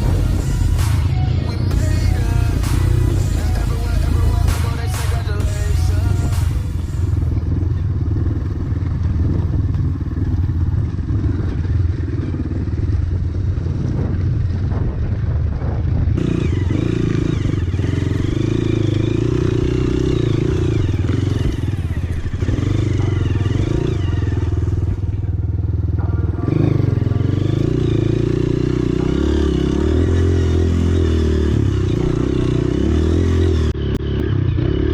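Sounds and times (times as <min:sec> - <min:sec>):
higher engine note: 0:00.0 - 0:15.0
dirt bike engine revving: 0:00.0 - 0:34.9.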